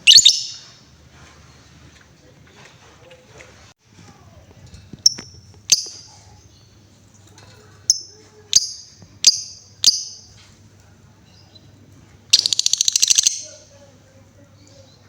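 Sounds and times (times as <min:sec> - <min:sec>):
lovebird chirping: 0:00.0 - 0:00.8, 0:05.0 - 0:06.8, 0:07.9 - 0:10.4, 0:11.3 - 0:13.8.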